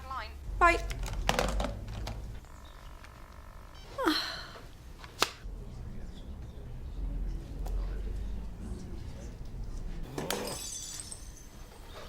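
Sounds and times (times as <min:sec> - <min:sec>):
steady hum of even tones: 0:00.3 - 0:07.2.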